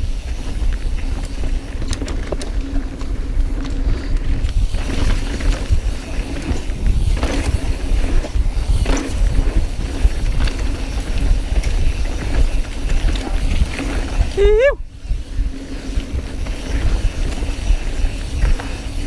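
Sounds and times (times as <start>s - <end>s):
bike clicks and rattles: 0.0s - 19.0s
bike tyre noise: 0.0s - 19.0s
wind rumble on microphone: 0.0s - 19.0s.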